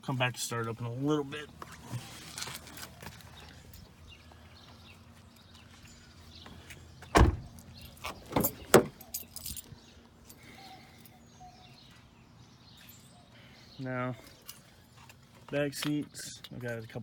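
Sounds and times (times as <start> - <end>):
car door shutting: 7.1 - 9.0
door latch and handle clicks: 8.3 - 9.0.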